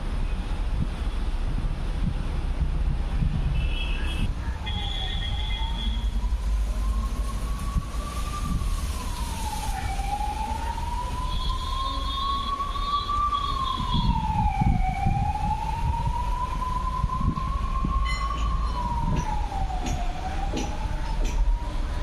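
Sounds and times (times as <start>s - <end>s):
low steady rumble: 0.0s - 9.2s
siren wailing: 4.8s - 21.8s.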